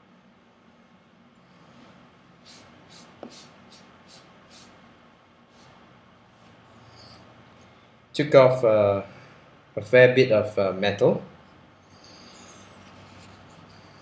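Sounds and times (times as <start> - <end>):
cloth wiping whetstone: 2.5 - 4.7.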